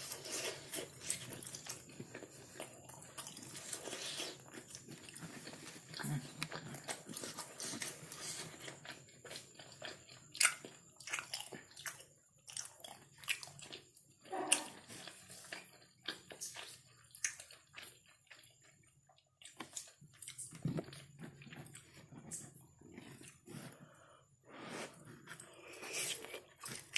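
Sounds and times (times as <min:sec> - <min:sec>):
wet chewing and lip smacking: 0:00.3 - 0:23.6.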